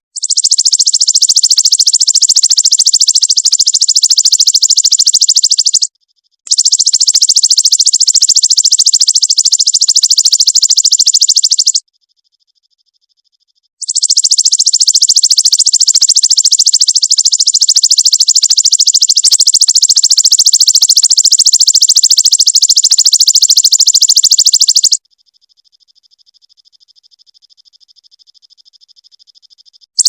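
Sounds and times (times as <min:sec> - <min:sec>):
bird buzzing trill: 0:17.8 - 0:25.0.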